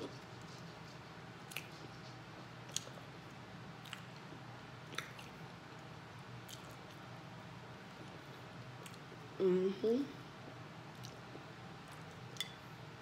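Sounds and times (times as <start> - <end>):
faint chewing of soft food: 0.0 - 9.4, 10.8 - 13.0
sharp mouth clicks: 1.5 - 1.8.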